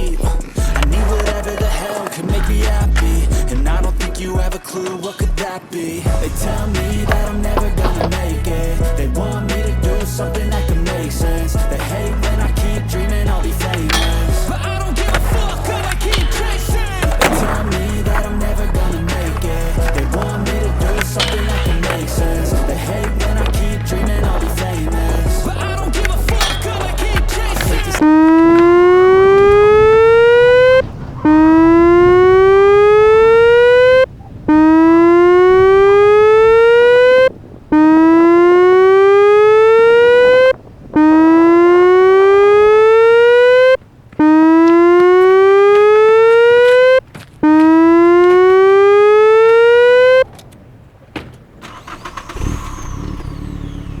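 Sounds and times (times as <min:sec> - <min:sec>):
electronic siren rising whoops: 0:28.0 - 0:47.0.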